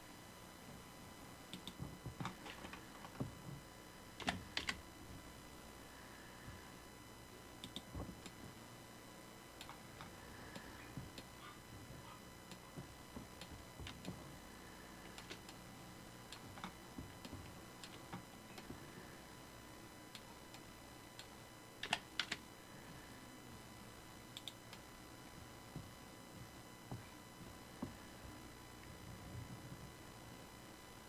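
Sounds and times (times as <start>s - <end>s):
faint electrical whine: 0.0s - 31.0s
keyboard and mouse clicks: 1.5s - 2.8s, 4.2s - 4.8s, 7.6s - 8.4s, 15.1s - 15.6s, 21.2s - 22.4s, 24.4s - 24.8s.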